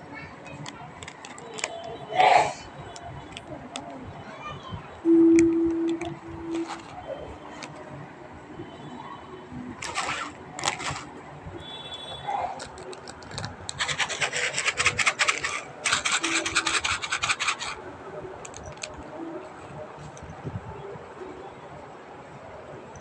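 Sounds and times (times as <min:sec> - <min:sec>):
rapid scraping strokes: 0:09.8 - 0:11.1, 0:12.4 - 0:17.8.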